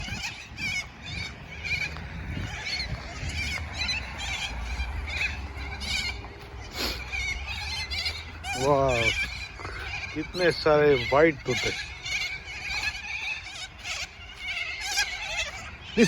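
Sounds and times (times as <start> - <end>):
parrots squawking: 0.0 - 16.0.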